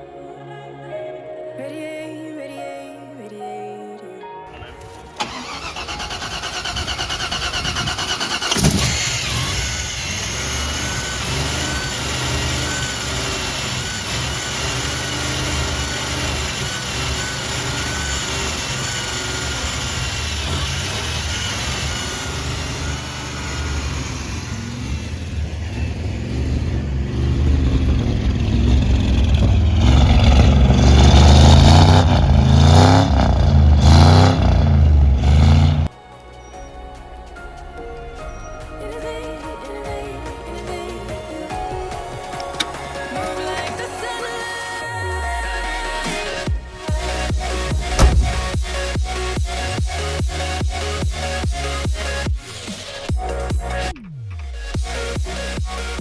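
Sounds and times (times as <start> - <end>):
engine cranking: 4.6 - 35.9, 41.7 - 54.0
engine starting with a pop: 4.8 - 24.6, 46.0 - 50.0
engine running and revving: 5.2 - 35.9, 45.1 - 56.0.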